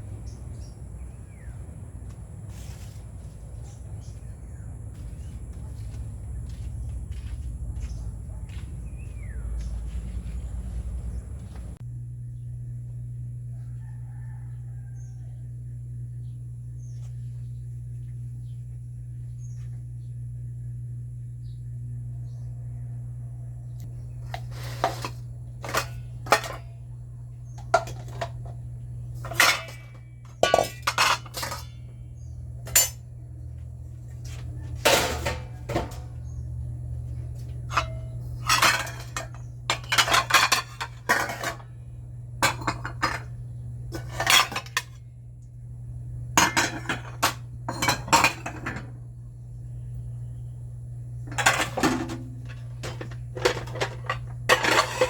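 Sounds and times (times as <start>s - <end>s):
steady low hum: 0.0s - 55.0s
dishes and cutlery clinking: 24.4s - 26.7s, 29.2s - 31.8s, 37.7s - 41.6s, 44.0s - 44.9s, 51.3s - 55.0s.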